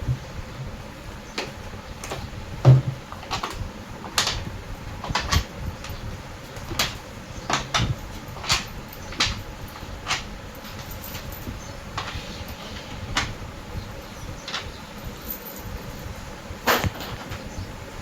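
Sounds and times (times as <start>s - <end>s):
tools knocking and clicking: 1.4s - 12.3s, 14.4s - 14.7s.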